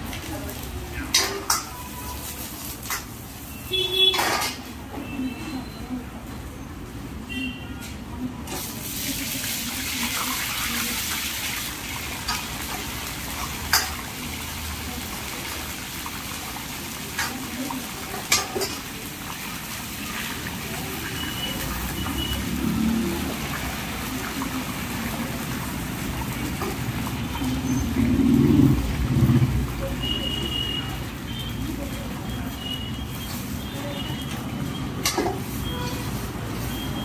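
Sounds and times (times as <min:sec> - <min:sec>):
deep-frying sizzle: 0:00.0 - 0:04.9, 0:08.3 - 0:37.0.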